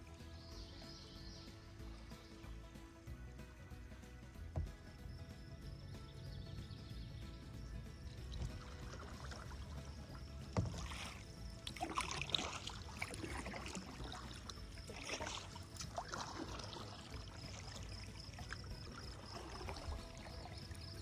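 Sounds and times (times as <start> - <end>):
low steady rumble: 1.6 - 21.0
paddle splashing in water: 4.5 - 21.0.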